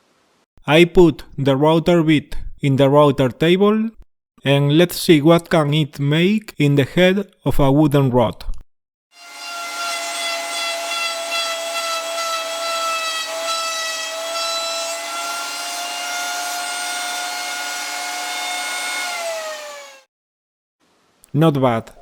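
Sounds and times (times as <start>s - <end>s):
router whining cutting wood: 9.2s - 20.1s.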